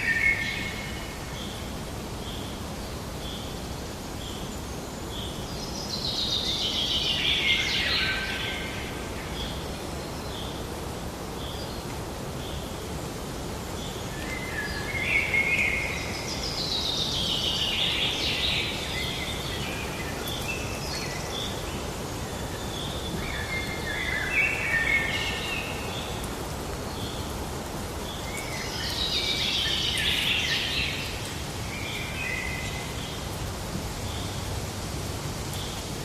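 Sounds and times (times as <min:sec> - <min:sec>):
steady outdoor hiss: 0:00.0 - 0:36.0
wild birds calling and singing: 0:13.8 - 0:33.3.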